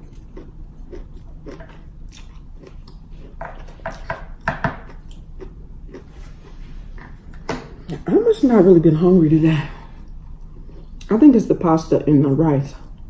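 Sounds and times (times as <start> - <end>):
person chewing food: 0.0 - 8.1, 9.9 - 11.1.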